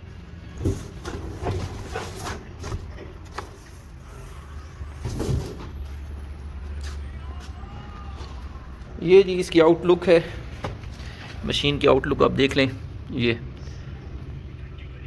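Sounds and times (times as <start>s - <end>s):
washing machine being handled: 0.5s - 4.0s, 5.0s - 5.9s.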